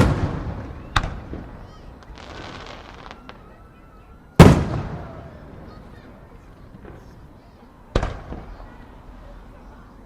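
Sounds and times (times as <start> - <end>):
faint firework crackles: 0.0 - 9.8
firework shells bursting: 2.0 - 3.4.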